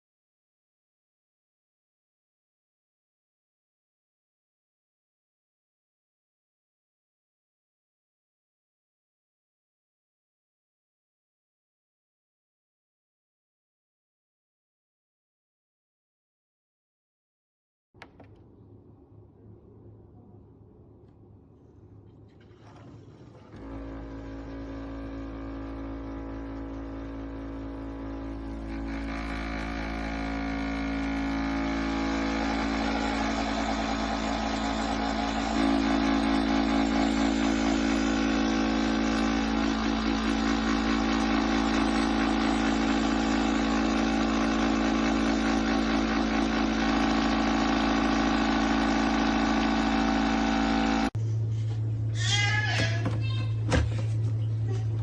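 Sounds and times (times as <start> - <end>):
espresso machine pump humming: 22.6 - 55.0.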